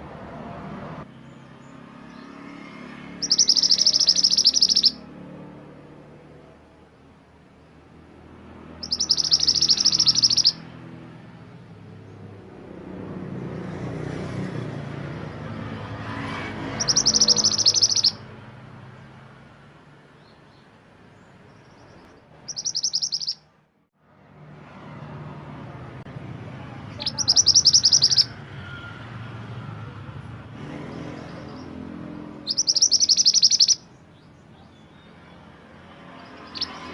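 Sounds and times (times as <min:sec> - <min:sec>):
songbird chattering trills: 0:03.2 - 0:05.0, 0:08.8 - 0:10.6, 0:16.8 - 0:18.2, 0:21.6 - 0:23.4, 0:26.9 - 0:28.3, 0:32.4 - 0:35.1, 0:36.2 - 0:36.9.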